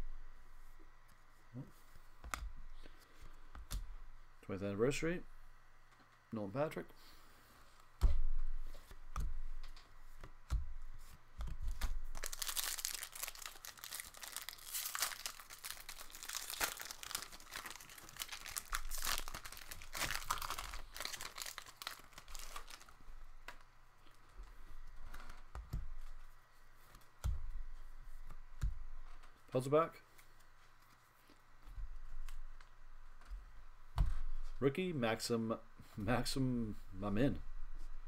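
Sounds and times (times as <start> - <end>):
rustles and taps of handling: 7.8 - 12.1
card pack wrapper tearing and crinkling: 11.7 - 23.0.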